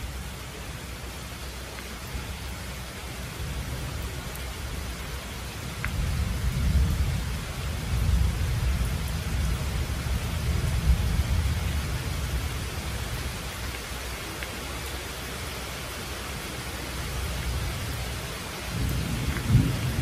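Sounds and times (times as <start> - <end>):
steady rain: 0.0 - 20.0
thunder rumble: 5.7 - 13.6, 17.6 - 20.0.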